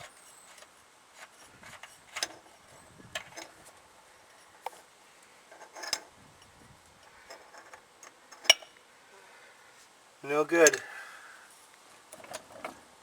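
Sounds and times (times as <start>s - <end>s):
metallic clinks and scrapes: 5.5s - 8.8s.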